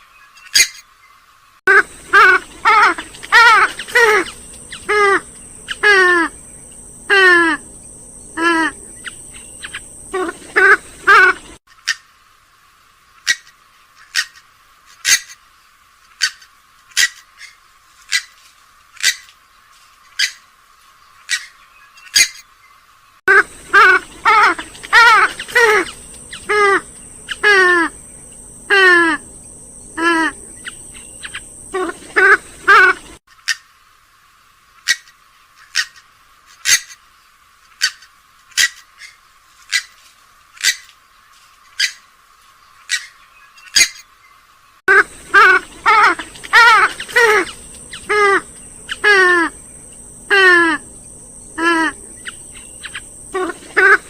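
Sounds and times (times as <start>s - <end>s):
rails calling harshly: 1.7s - 11.6s, 23.3s - 33.2s, 44.9s - 54.0s.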